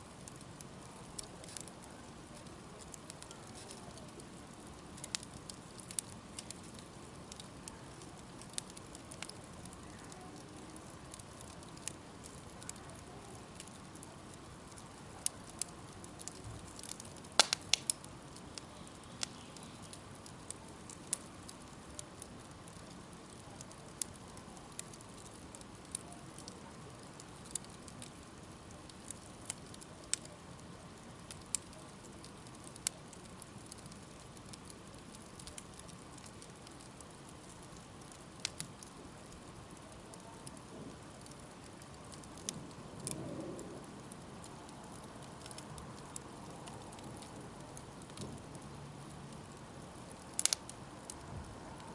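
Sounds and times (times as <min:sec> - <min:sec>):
bonfire crackling and popping: 0:00.0 - 0:51.9
low steady hiss: 0:00.0 - 0:51.9.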